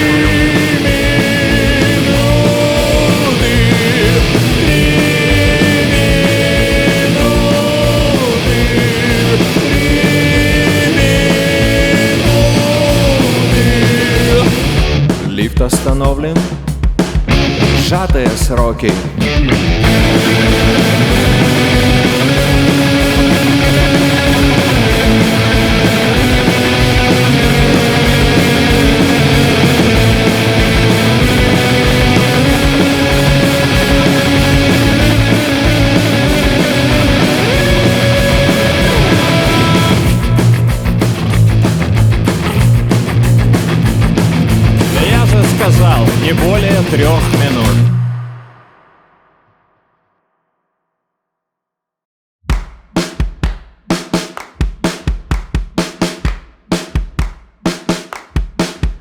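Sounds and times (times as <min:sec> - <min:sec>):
rock band playing: 0:00.0 - 0:48.3.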